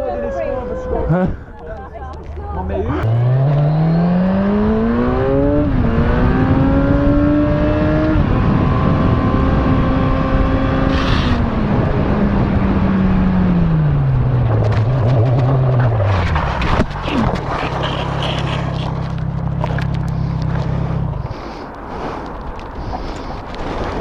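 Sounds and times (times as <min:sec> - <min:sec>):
motorcycle engine changing gears: 0:02.9 - 0:22.7
wind rush on microphone: 0:04.8 - 0:17.4.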